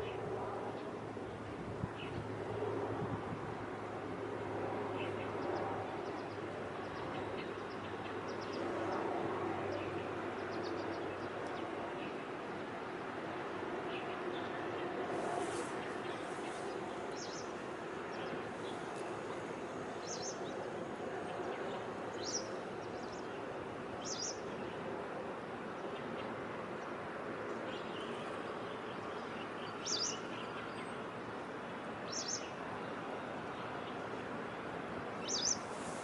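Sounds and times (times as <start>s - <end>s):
outdoor background noise: 0.0s - 36.0s
bird chirping: 29.2s - 30.9s, 35.2s - 35.7s.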